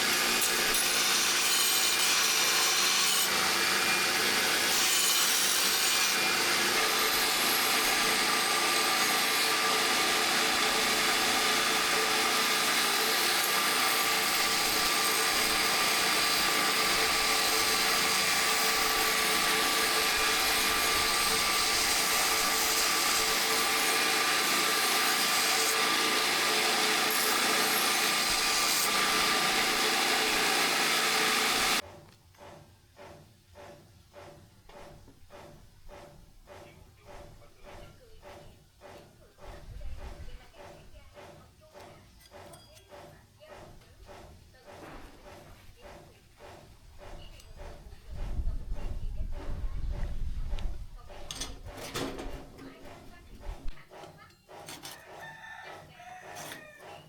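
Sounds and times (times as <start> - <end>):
power tool whining and grinding: 0.0 - 31.8.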